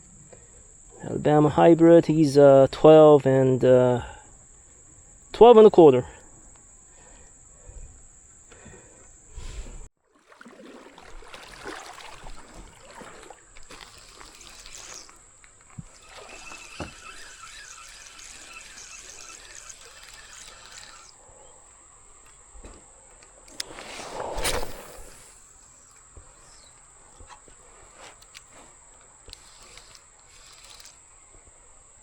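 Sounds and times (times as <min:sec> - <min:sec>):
creek water trickling: 0:10.0 - 0:22.2.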